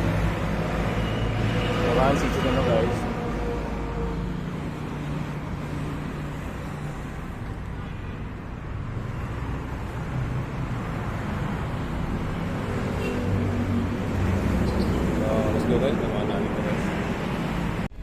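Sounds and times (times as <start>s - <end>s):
vehicles passing: 0.0s - 18.0s.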